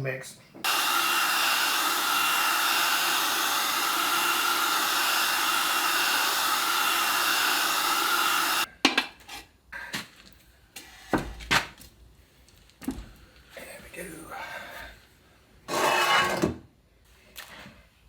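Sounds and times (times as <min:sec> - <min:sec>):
air tool hissing: 0:00.6 - 0:08.7.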